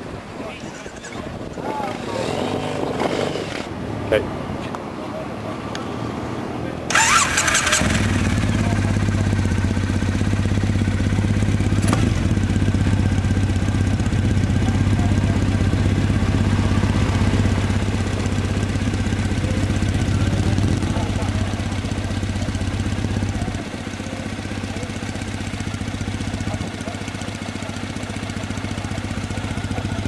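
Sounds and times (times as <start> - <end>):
motorcycle engine idling: 6.9 - 30.0.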